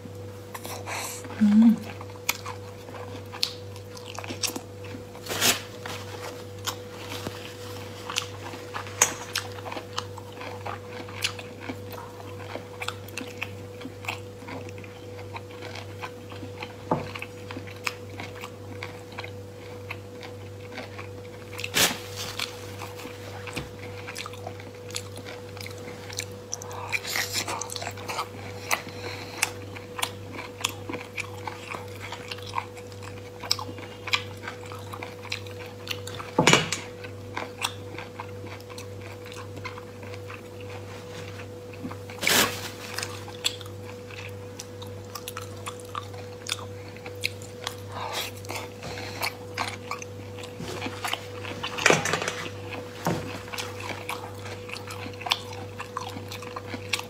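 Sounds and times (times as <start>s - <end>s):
steady low hum: 0.0s - 57.0s
chewing and lip smacking: 0.6s - 5.0s, 8.1s - 21.7s, 23.8s - 36.3s, 43.0s - 51.8s, 53.4s - 57.0s.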